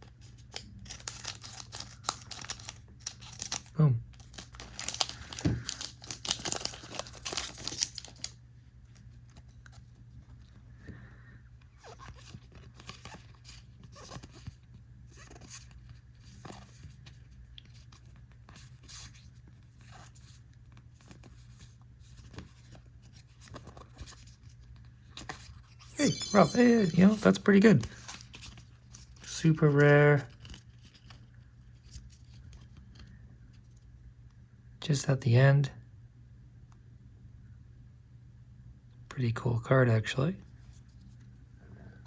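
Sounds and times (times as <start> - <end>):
cards clicking and rustling: 0.0 - 10.6, 11.6 - 33.1
foil pack tearing and crinkling: 0.1 - 8.4.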